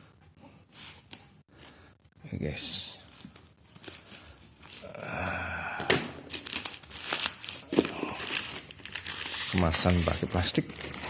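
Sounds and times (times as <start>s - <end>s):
plastic packaging crinkling: 3.0s - 4.9s, 6.2s - 11.0s
plastic tearing: 6.2s - 11.0s.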